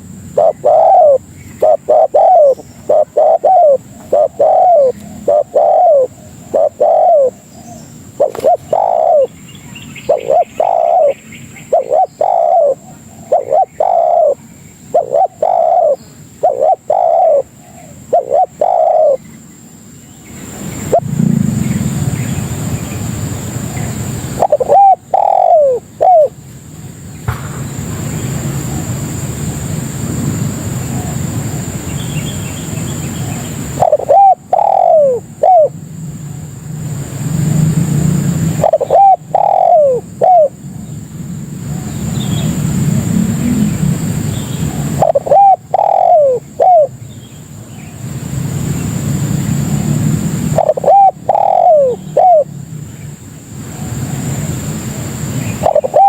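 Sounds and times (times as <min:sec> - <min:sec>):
dove cooing: 0:00.0 - 0:09.4, 0:10.0 - 0:19.2, 0:20.8 - 0:21.9, 0:23.5 - 0:26.4, 0:33.0 - 0:35.8, 0:38.5 - 0:40.8, 0:44.6 - 0:47.0, 0:50.4 - 0:52.5, 0:55.5 - 0:56.0
faint high whine: 0:00.0 - 0:56.0
low rumble: 0:27.1 - 0:31.4.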